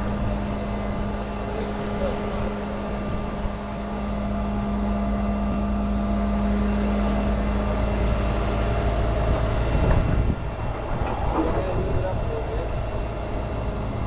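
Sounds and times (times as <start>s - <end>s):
truck engine droning: 0.0s - 14.0s.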